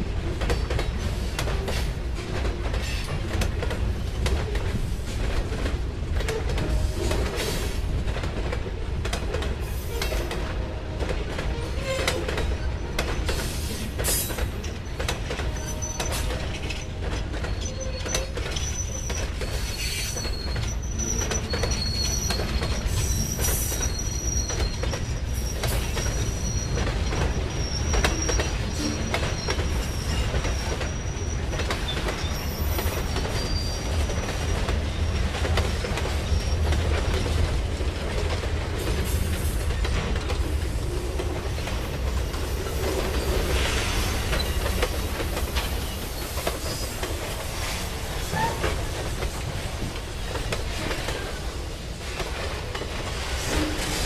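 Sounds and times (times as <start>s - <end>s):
freight train rumbling past: 0.0s - 18.6s, 19.2s - 54.0s
high wheel squeal: 17.4s - 34.0s, 45.6s - 47.3s.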